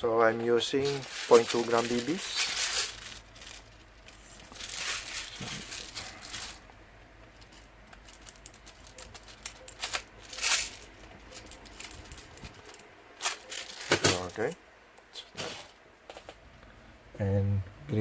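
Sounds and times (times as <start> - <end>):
hand rustling: 0.2 - 14.6.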